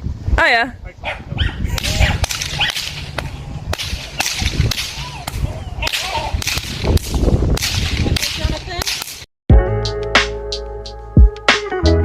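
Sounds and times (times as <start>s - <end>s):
whip cracking: 1.8s - 9.3s.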